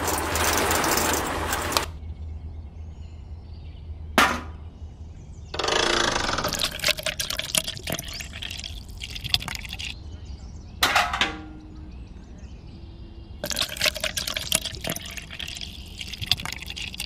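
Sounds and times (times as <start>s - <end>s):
wet cement pouring into pail: 0.0s - 1.9s, 6.5s - 10.0s, 13.4s - 17.0s.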